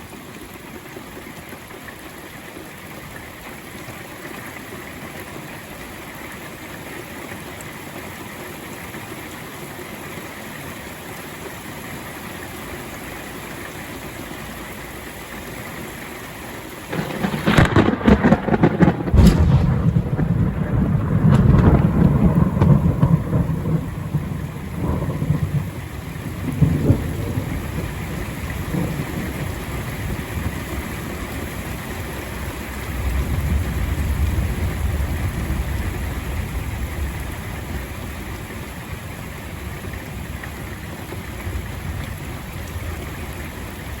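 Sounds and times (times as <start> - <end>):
steady rain: 0.0 - 44.0
sharp thunder crack: 16.9 - 25.8
thunder rumbling: 16.9 - 38.9.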